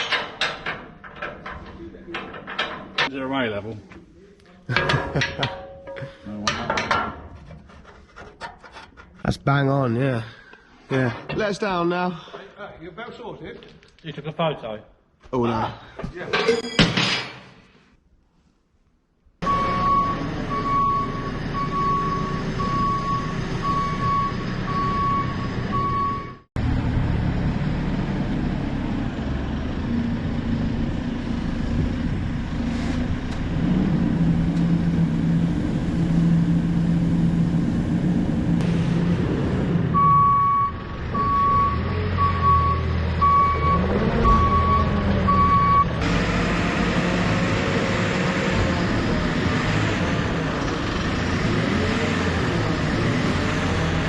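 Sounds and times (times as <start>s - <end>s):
reversing alarm beeping: 19.4s - 26.5s, 39.9s - 46.0s
diesel engine running: 19.4s - 54.0s.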